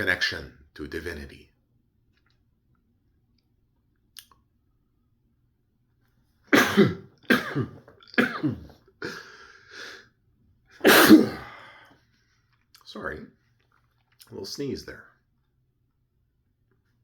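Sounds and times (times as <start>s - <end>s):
man sneezing: 6.5s - 10.0s, 10.8s - 11.9s.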